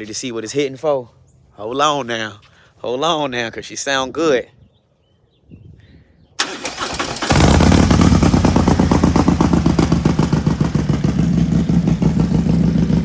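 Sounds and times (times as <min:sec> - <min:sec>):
motorcycle starter cranking: 0:06.4 - 0:11.0
motorcycle engine idling: 0:07.2 - 0:13.0.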